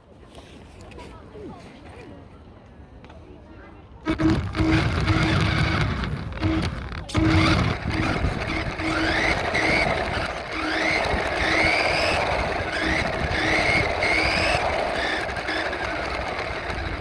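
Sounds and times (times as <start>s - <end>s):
electric motor whining: 4.1s - 17.0s
low hum: 4.1s - 17.0s.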